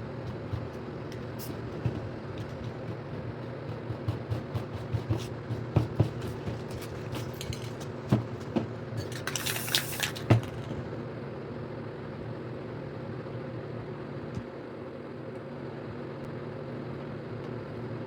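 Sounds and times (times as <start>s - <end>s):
handling clatter and knocks: 0.0s - 11.0s
steady background hum: 0.0s - 18.0s
spray paint can hiss: 9.3s - 10.3s.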